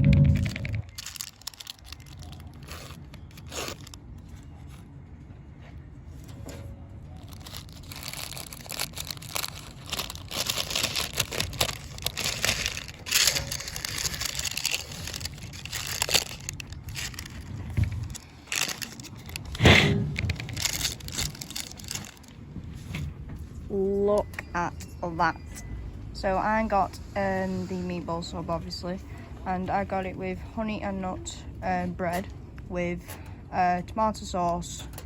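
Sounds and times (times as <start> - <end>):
wrapper crunch: 0.2 - 4.8, 7.2 - 22.4
wrapper crinkling and tearing: 0.3 - 4.8, 7.2 - 22.4.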